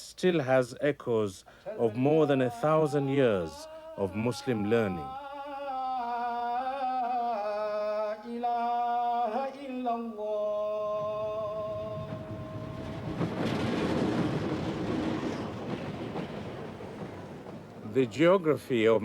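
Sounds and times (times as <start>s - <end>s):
man chanting: 0.0s - 13.0s, 17.9s - 19.0s
steady rushing noise: 11.0s - 19.0s.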